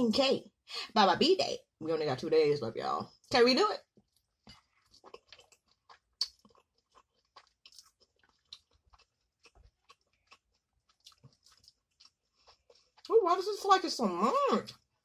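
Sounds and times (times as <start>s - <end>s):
wet mouth smacks while chewing: 4.1s - 13.1s.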